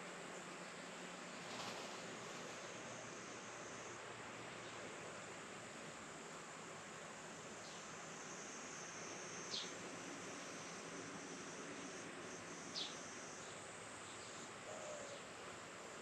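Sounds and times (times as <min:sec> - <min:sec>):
high-pitched insect trill: 0:07.6 - 0:14.4.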